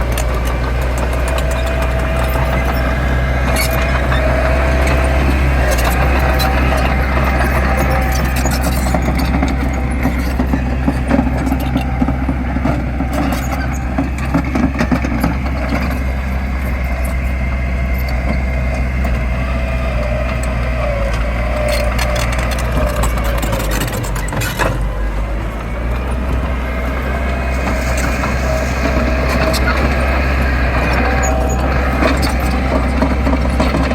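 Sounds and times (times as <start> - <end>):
diesel engine under load: 0.0 - 33.9.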